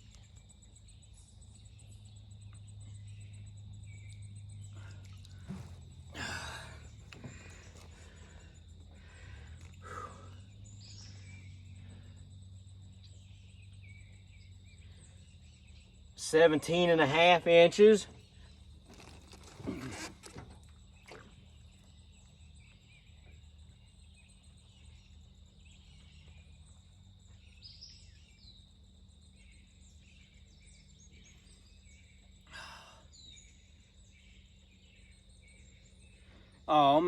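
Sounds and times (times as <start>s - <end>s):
steady low hum: 0.0s - 36.7s
faint bird chirps: 0.0s - 37.0s
short rustle: 5.0s - 8.3s, 18.8s - 20.6s.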